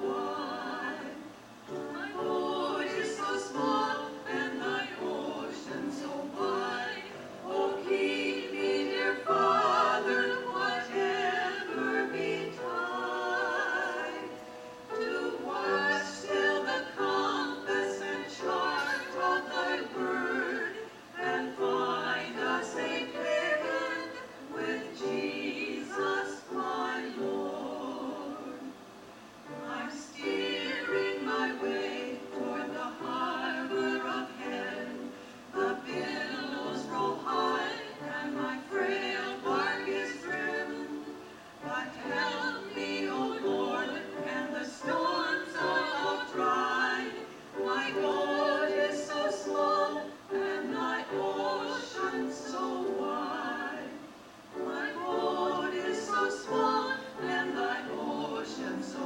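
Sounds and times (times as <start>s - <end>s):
choir singing with accompaniment: 0.0s - 59.0s.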